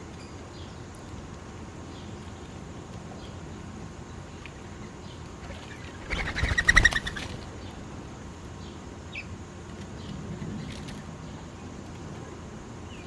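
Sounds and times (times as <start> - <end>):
faint bird chirps: 4.3 - 7.8
bird call of rapid pulses: 5.0 - 7.8.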